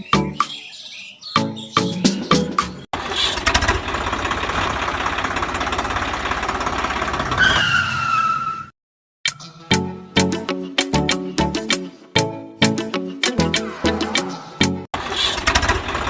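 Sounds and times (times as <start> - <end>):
engine running steadily: 3.0 - 7.4, 15.0 - 16.0
falling whistle-like tone: 7.4 - 8.7.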